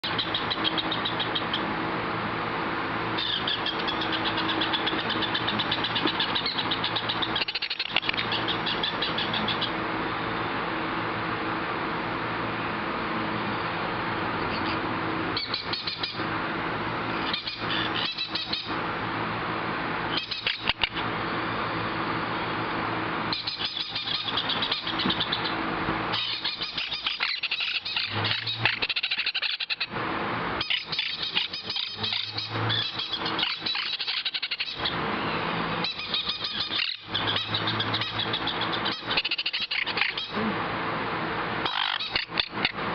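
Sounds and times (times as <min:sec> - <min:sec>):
parrots chirping and squawking: 0:00.0 - 0:01.8, 0:03.1 - 0:09.9, 0:14.5 - 0:14.8, 0:15.4 - 0:16.3, 0:17.2 - 0:18.8, 0:20.1 - 0:21.1, 0:23.3 - 0:30.0, 0:30.6 - 0:35.1, 0:35.7 - 0:40.4, 0:41.6 - 0:42.9.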